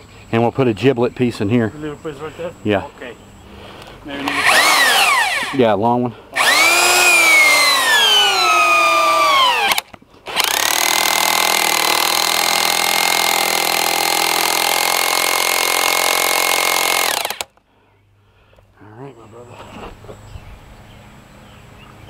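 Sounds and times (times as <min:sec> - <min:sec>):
power tool motor whine: 0:04.2 - 0:05.6, 0:06.4 - 0:17.5.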